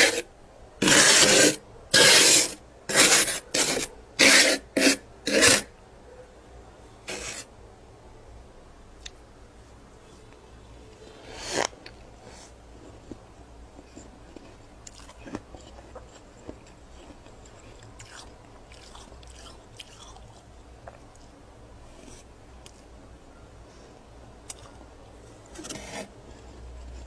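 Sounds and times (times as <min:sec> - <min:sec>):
person crunching frost: 0:00.0 - 0:00.2, 0:00.8 - 0:05.7, 0:07.1 - 0:07.4
chewing with soft crackles: 0:11.9 - 0:22.9, 0:23.6 - 0:27.0.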